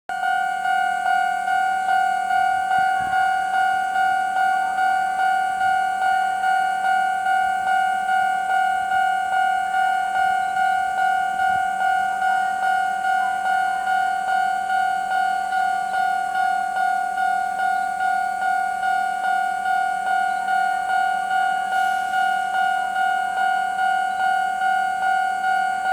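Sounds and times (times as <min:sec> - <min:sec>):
level crossing warning bell: 0:00.1 - 0:25.9.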